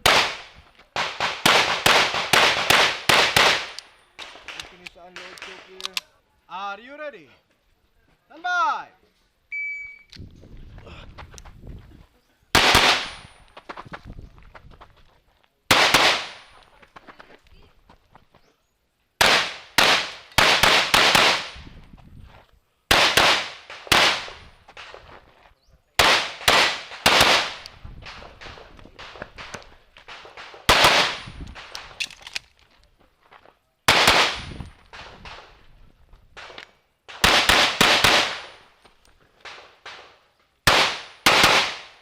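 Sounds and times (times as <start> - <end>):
pistol shots cracking: 0.0 - 6.0, 12.6 - 13.2, 15.7 - 16.5, 19.2 - 21.6, 22.9 - 24.4, 26.0 - 32.1, 33.9 - 35.4, 36.4 - 38.6, 39.4 - 42.0.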